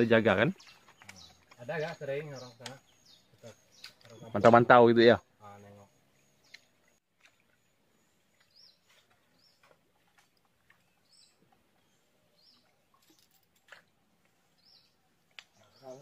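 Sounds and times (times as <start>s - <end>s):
faint high bird chirps: 0.0s - 9.8s.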